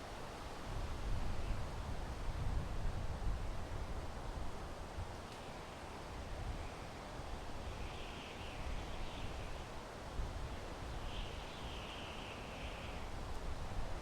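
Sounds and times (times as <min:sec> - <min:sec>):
wind through pine trees: 0:00.0 - 0:14.0.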